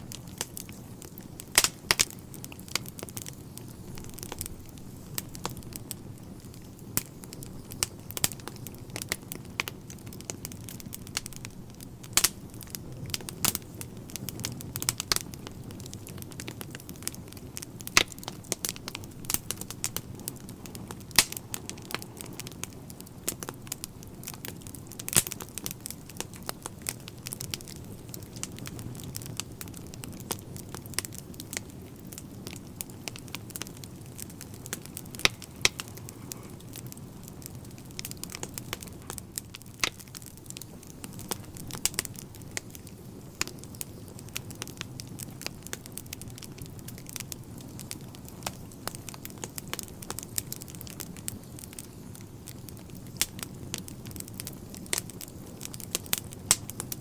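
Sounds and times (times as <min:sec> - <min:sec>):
logs crackling and popping: 0:00.0 - 0:57.0
low rush of fire: 0:00.0 - 0:57.0.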